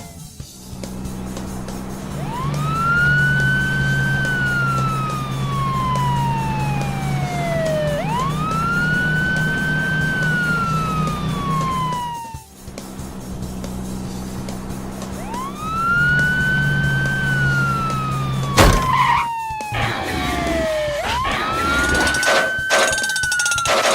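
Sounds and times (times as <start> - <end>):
siren wailing: 2.2 - 12.5, 15.2 - 23.9.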